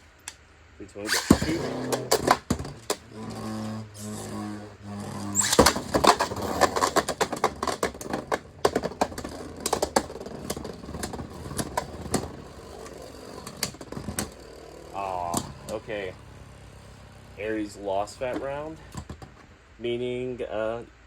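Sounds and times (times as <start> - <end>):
low steady hum: 0.0 - 21.0
plastic clacks of hits: 1.1 - 3.1, 5.3 - 17.2, 18.3 - 19.5
spinning tops clashing: 1.1 - 3.1.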